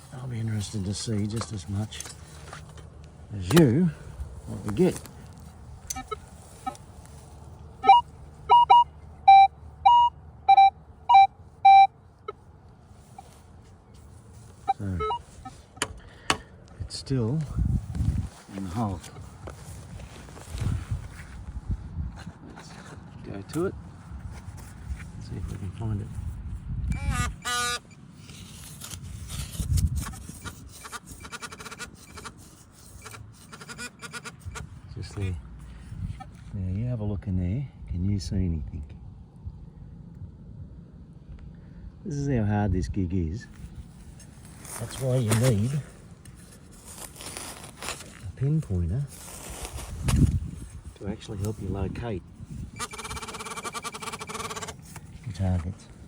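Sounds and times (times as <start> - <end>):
metal detector beeps: 5.9 - 6.8, 7.8 - 12.4, 14.6 - 15.6, 26.9 - 28.0, 30.4 - 34.7, 52.7 - 54.8.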